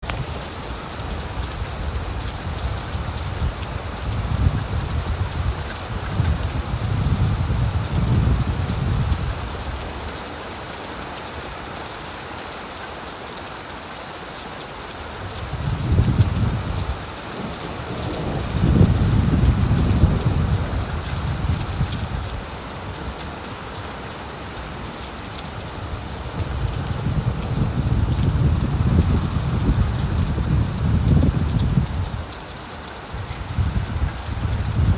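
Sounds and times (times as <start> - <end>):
heavy rain on a tin roof: 0.0 - 34.9
thunder rolling: 15.7 - 22.3, 33.6 - 34.9.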